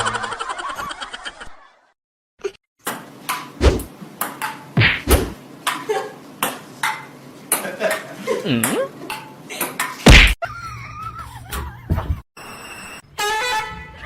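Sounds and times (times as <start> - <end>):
heavy thuds: 3.6 - 3.9, 4.8 - 5.4
sharp knocks: 4.8 - 5.4
music: 12.9 - 14.0.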